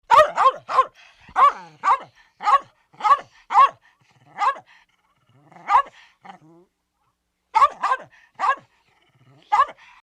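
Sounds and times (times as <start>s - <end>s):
dog barking: 0.1s - 3.8s, 4.4s - 4.7s, 5.6s - 6.0s, 7.5s - 8.7s, 9.4s - 9.9s.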